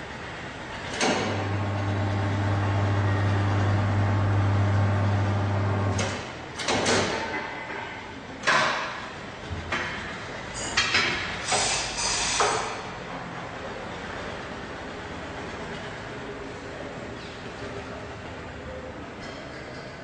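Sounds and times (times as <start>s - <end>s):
tyre changer motor humming: 0.9s - 6.0s.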